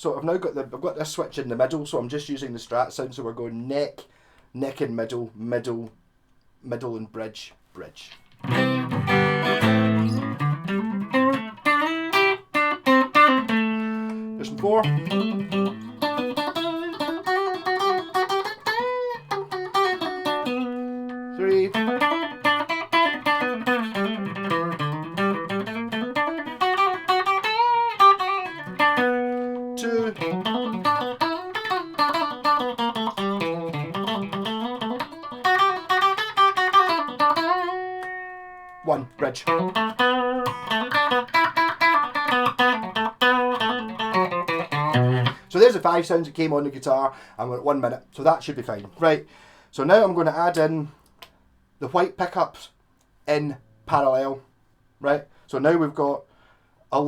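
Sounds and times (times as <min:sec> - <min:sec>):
electric guitar playing: 0:08.3 - 0:46.2.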